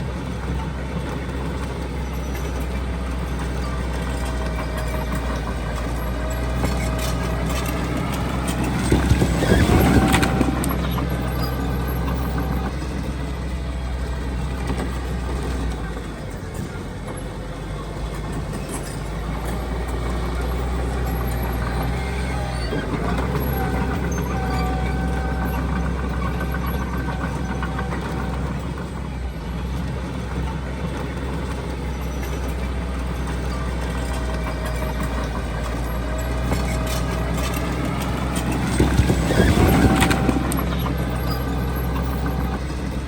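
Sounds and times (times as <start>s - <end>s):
heavy diesel machinery running: 0.0s - 43.0s.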